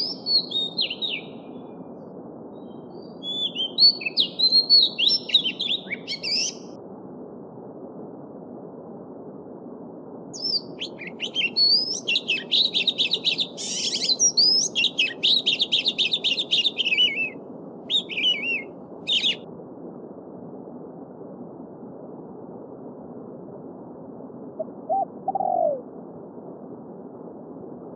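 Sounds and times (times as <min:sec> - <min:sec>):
songbird trilling and whistling: 0:00.0 - 0:01.5, 0:02.6 - 0:06.6, 0:10.4 - 0:19.4.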